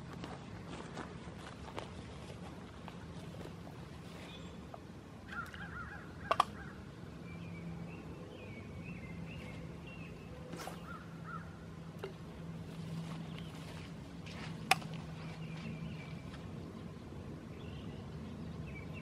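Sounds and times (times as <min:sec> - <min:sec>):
faint low hum: 0:00.0 - 0:19.0
thin warbling birdsong: 0:02.6 - 0:19.0
harsh bird calls: 0:05.3 - 0:11.7.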